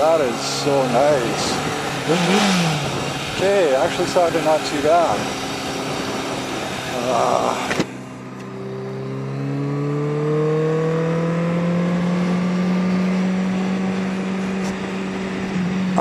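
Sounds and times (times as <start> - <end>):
motorcycle engine accelerating: 0.0 - 16.0
wind noise burst: 1.5 - 4.3.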